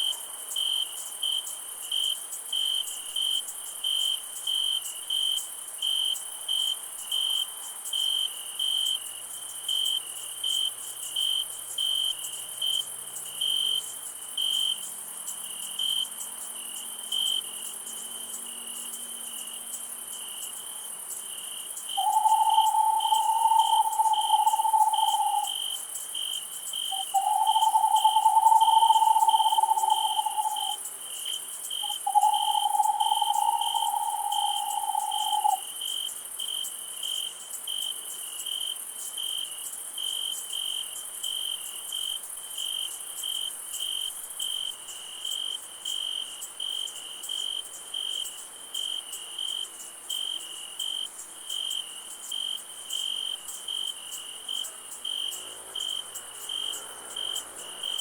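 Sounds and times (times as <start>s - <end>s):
continuous insect hiss: 0.0s - 58.0s
crickets chirping: 0.0s - 58.0s
long level calls: 22.0s - 25.6s, 26.9s - 30.8s, 31.8s - 35.6s.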